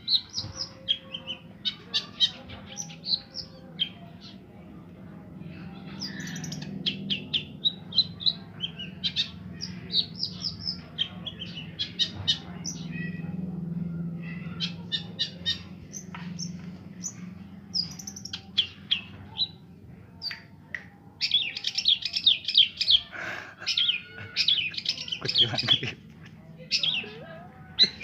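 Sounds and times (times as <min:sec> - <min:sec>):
shrike singing: 0:05.5 - 0:19.6, 0:21.2 - 0:26.0, 0:26.6 - 0:28.0.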